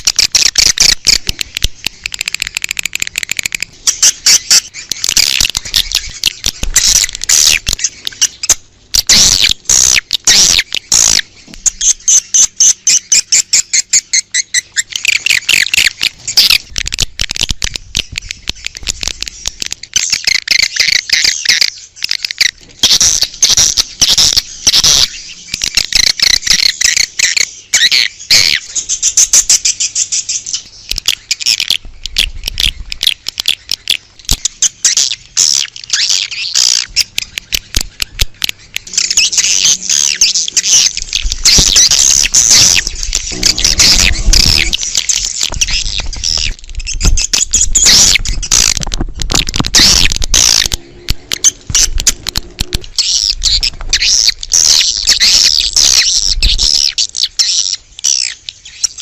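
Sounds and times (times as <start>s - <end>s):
swiftlets twittering: 34.6s - 48.8s.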